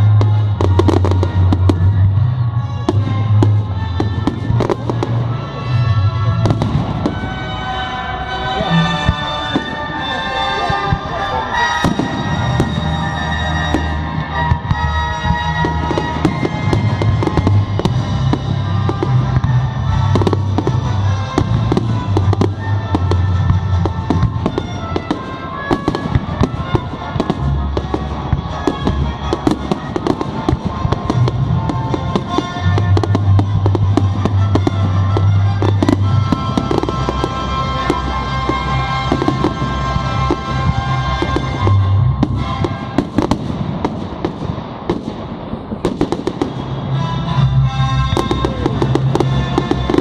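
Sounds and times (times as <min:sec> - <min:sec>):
fireworks bangs and crackling: 0:00.0 - 0:50.0.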